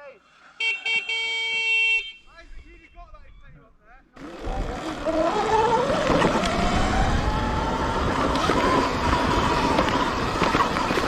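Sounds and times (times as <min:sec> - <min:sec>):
electric motor whining: 0:04.2 - 0:11.0.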